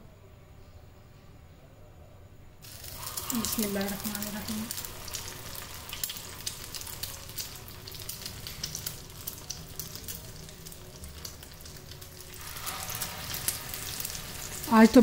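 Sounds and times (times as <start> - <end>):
patty sizzling in oil: 2.6 - 15.0.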